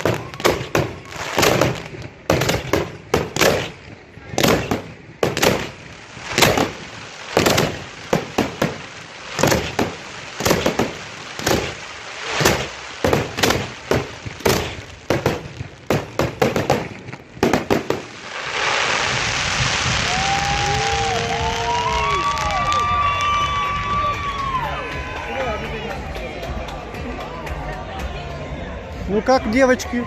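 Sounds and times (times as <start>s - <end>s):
fireworks shells bursting: 0.0s - 21.5s
crowd cheering and applauding: 19.6s - 30.0s.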